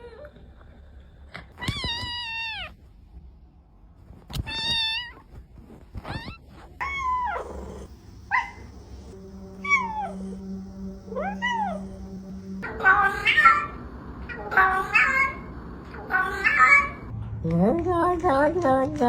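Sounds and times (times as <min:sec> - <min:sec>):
cat meowing: 0:06.0 - 0:08.7, 0:09.6 - 0:10.3, 0:11.1 - 0:12.0.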